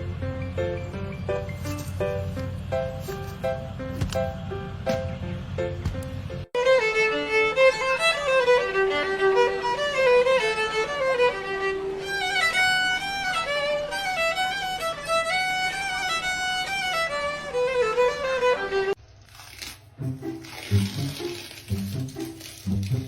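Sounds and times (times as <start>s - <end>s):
lively fiddle melody: 6.6s - 19.0s.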